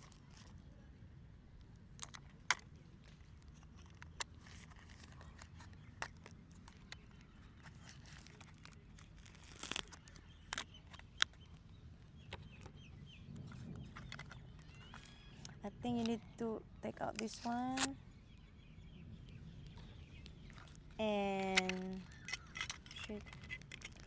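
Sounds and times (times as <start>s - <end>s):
packaging crinkle: 3.2s - 11.4s, 17.1s - 18.0s, 20.2s - 24.0s.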